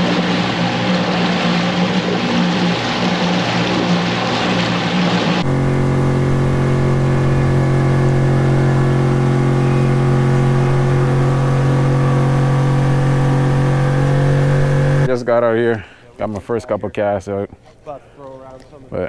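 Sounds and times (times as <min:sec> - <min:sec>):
boat motor humming: 0:05.4 - 0:15.6.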